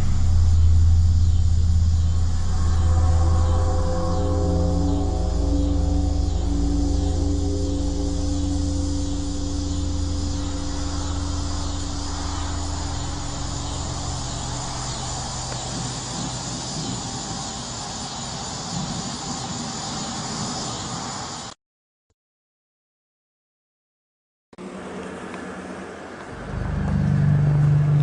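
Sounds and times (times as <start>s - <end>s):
low droning hum: 0.0s - 21.1s, 24.6s - 28.0s
steady high hiss: 0.0s - 21.6s.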